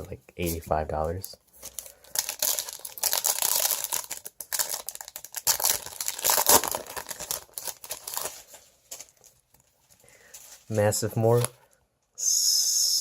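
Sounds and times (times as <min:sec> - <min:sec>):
foil wrapper tearing and crinkling: 0:01.6 - 0:09.3.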